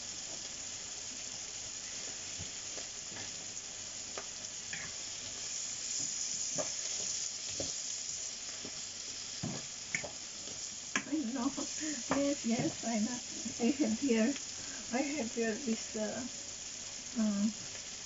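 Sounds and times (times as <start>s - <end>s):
food sizzling in oil: 0.0s - 18.0s.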